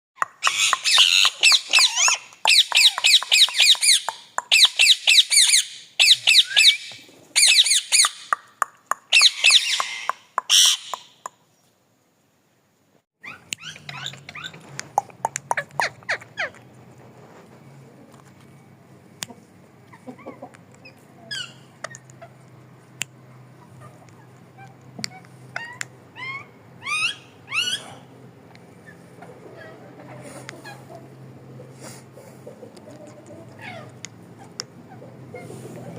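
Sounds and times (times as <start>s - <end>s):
parrot calling: 0.2s - 11.3s, 13.2s - 16.6s, 19.9s - 22.4s, 23.4s - 28.2s
chirps and clicks: 0.2s - 11.7s, 13.2s - 16.6s, 19.2s - 26.0s, 32.6s - 34.7s.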